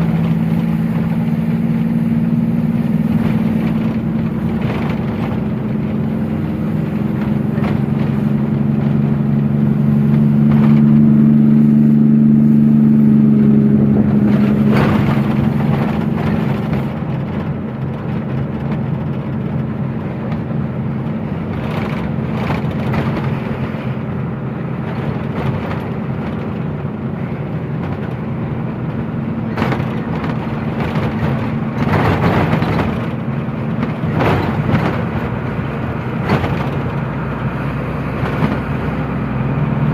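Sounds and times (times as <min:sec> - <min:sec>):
road noise: 0:00.0 - 0:39.9
truck engine running: 0:00.0 - 0:39.9
short knocks and rattles: 0:27.7 - 0:37.2.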